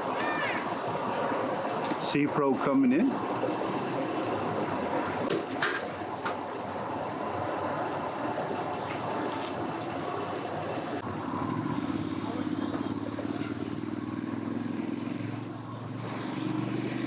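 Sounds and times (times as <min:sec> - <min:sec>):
water washing: 0:00.0 - 0:11.0
outboard engine humming: 0:00.0 - 0:16.8.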